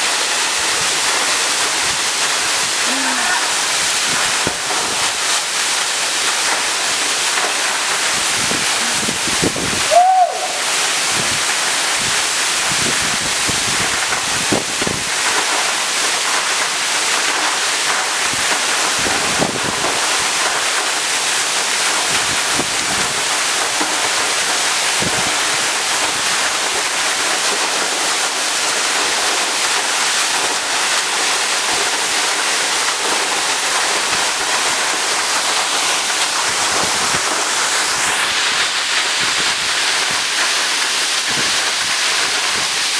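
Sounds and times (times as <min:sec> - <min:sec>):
waterfall rushing: 0:00.0 - 0:42.9
wind buffeting microphone: 0:08.2 - 0:15.2.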